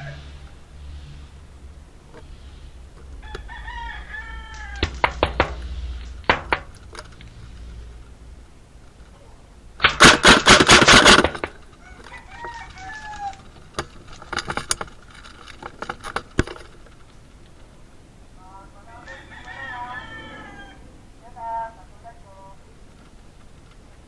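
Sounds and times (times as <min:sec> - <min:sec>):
rooster crowing: 0:00.0 - 0:00.6, 0:03.1 - 0:05.6, 0:11.7 - 0:13.5, 0:18.4 - 0:21.1
airsoft gun firing: 0:09.8 - 0:11.5.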